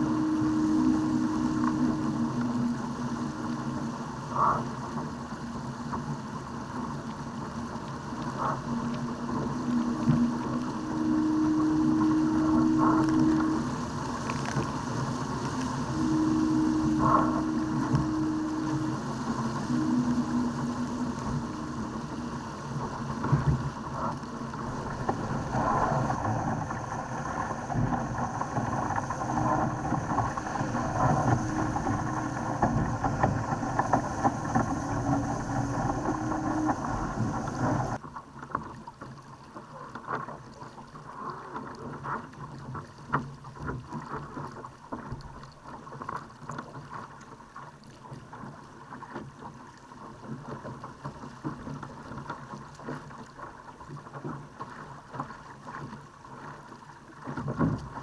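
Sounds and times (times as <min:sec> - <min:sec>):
low hum: 0:00.0 - 0:38.0
water rushing along hull: 0:00.0 - 0:58.0
wind buffeting microphone: 0:08.3 - 0:38.0.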